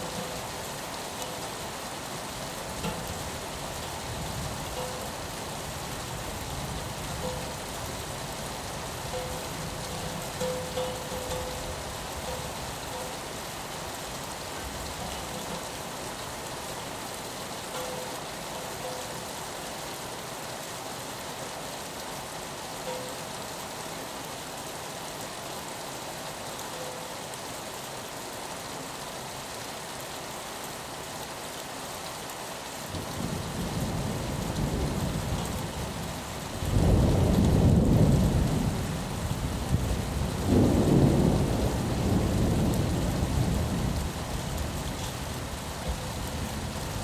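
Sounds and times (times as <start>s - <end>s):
rain on a window: 0.0s - 47.0s
rolling thunder: 36.7s - 44.2s.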